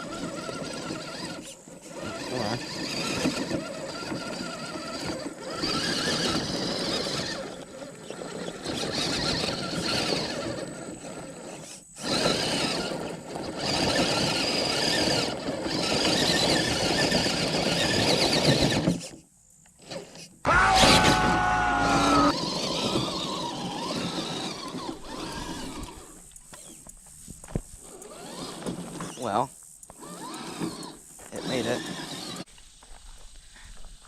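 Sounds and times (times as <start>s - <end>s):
electric motor whining: 20.5s - 26.8s, 29.9s - 32.5s.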